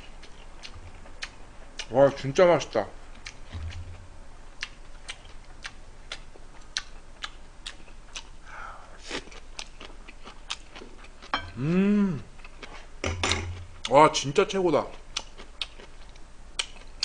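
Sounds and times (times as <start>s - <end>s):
man chewing with wet mouth clicks: 0.0s - 2.2s, 3.1s - 4.0s, 4.6s - 8.4s, 9.0s - 11.3s, 14.9s - 17.0s
short voiced hum: 11.5s - 12.3s.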